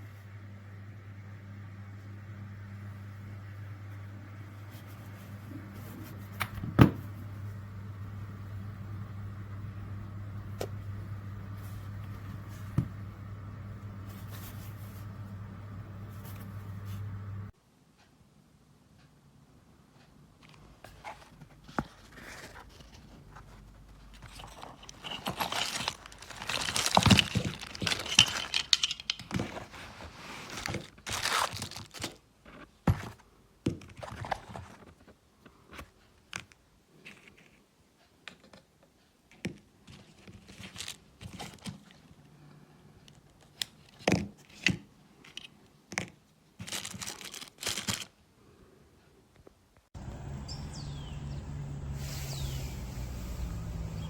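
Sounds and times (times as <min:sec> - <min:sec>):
steady low hum: 0:00.0 - 0:17.5, 0:50.0 - 0:54.0
rustling and crinkling: 0:04.6 - 0:07.5, 0:10.5 - 0:17.5, 0:20.4 - 0:37.7, 0:38.3 - 0:42.3, 0:43.0 - 0:48.2.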